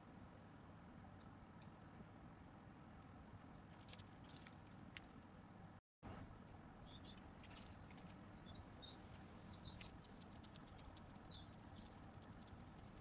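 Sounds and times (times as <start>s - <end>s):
small animals pattering: 1.2s - 5.1s, 6.4s - 13.0s.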